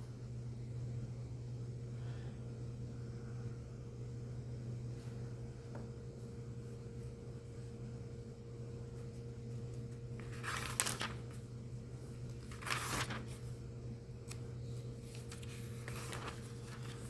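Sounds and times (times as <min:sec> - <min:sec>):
low electrical hum: 0:00.0 - 0:17.0
paper pages rustling: 0:08.9 - 0:17.0.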